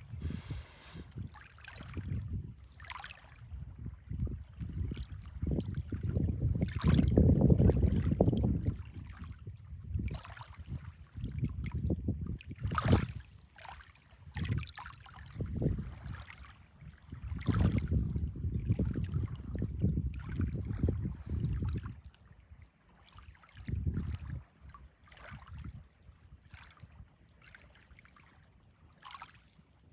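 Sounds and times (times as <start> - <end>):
wind rumbling on microphone: 0.0 - 2.7, 3.4 - 13.2, 15.4 - 16.1, 17.1 - 22.0, 23.7 - 24.4
water lapping and splashing: 0.0 - 3.4.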